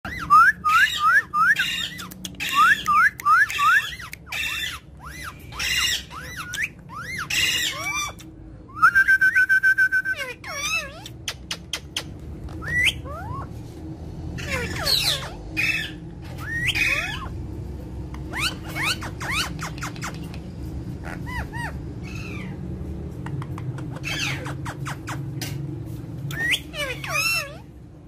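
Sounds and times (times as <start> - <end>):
parakeet whistled chirps: 0.1 - 11.0, 12.0 - 13.5, 14.4 - 17.3, 18.3 - 20.1, 26.3 - 27.6
steady low hum: 0.1 - 28.0.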